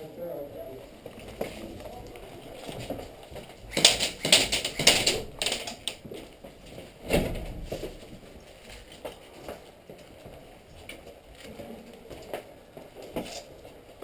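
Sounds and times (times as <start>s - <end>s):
sharp clicks and scuffs: 2.8s - 6.0s.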